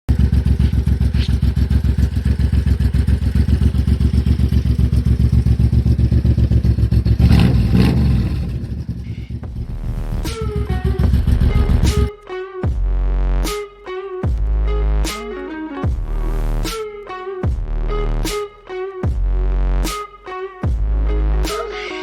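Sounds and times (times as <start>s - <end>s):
motorcycle engine running: 0.0s - 12.1s.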